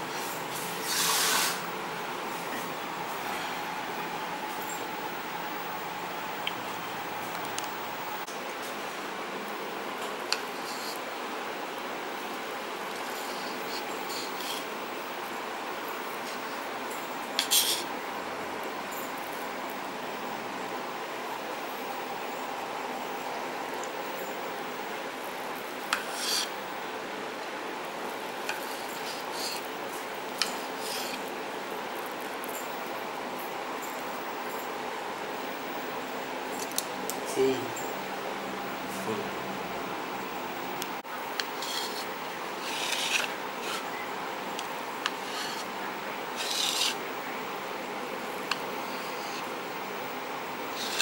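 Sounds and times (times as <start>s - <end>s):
background hiss: 0.0s - 51.0s
steady hum: 0.0s - 51.0s
utensil short scrape: 0.1s - 1.6s, 26.0s - 26.5s, 41.6s - 43.9s, 45.1s - 45.7s, 46.4s - 47.0s, 50.8s - 51.0s.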